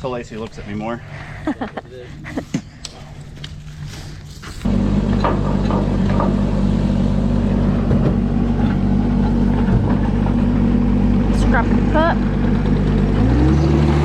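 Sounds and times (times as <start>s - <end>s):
vehicle engine running: 4.6s - 14.0s.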